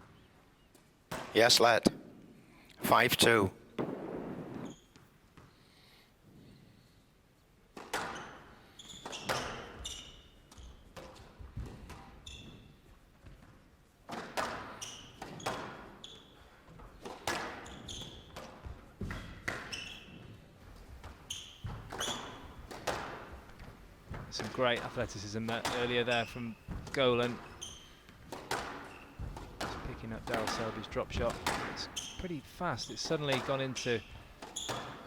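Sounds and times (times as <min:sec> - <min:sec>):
squash ball cracking off walls: 0:03.8 - 0:04.8, 0:14.1 - 0:15.8, 0:17.0 - 0:19.8, 0:21.0 - 0:24.8, 0:26.7 - 0:32.2
shoes squeaking on court floor: 0:04.3 - 0:05.5, 0:07.8 - 0:35.0.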